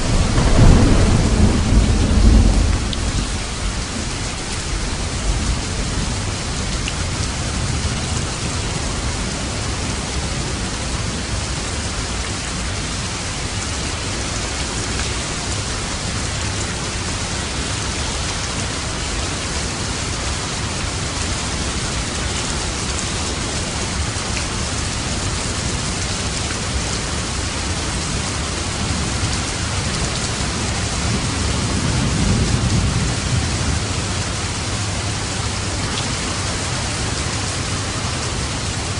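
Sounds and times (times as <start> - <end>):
distant thunder rumble: 0.0 - 9.2, 28.8 - 38.9
heavy rain: 0.0 - 38.9.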